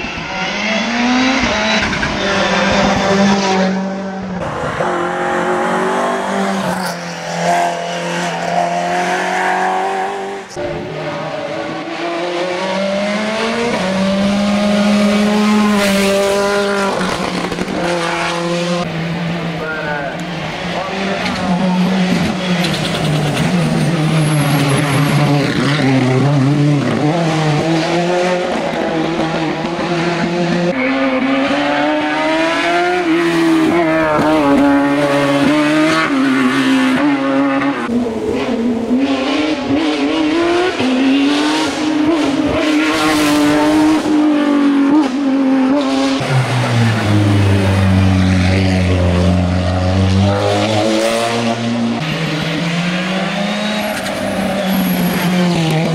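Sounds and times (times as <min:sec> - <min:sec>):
race car engines at hard throttle: 0:00.0 - 0:55.9.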